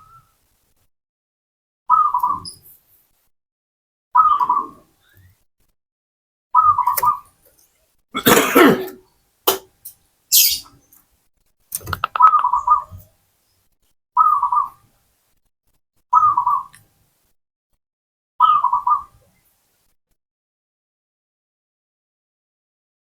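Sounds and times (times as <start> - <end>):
harsh cough-like burst: 8.2 - 9.0
sharp click: 11.7 - 12.6
dove cooing: 11.9 - 13.0.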